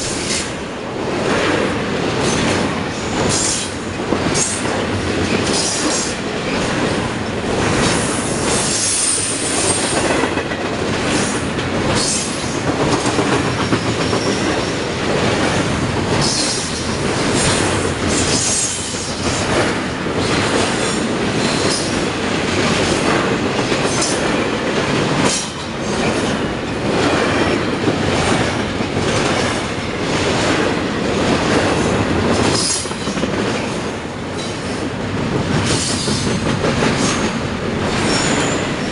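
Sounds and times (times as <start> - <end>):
train wheels clattering over rail joints: 0.0 - 38.9
high wheel squeal: 38.0 - 38.8.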